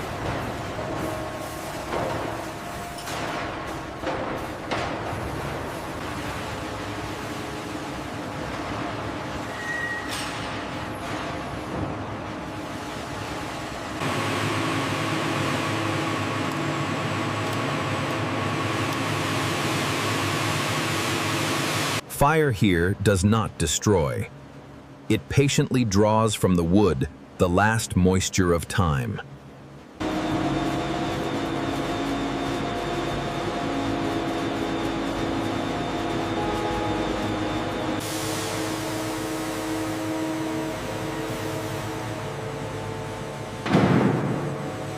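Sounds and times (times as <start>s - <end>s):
steady machine whine: 0.0s - 22.1s, 29.3s - 44.9s
factory machinery drone: 0.0s - 44.9s
machinery hiss: 35.3s - 44.9s.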